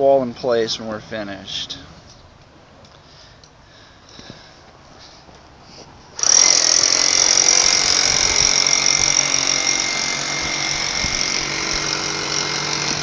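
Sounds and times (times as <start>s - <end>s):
electric power tool whining: 6.2s - 13.0s.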